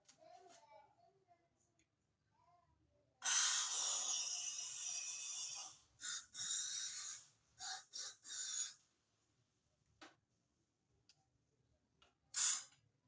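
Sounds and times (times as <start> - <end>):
aerosol spray hissing: 3.2 - 8.8, 12.4 - 12.7.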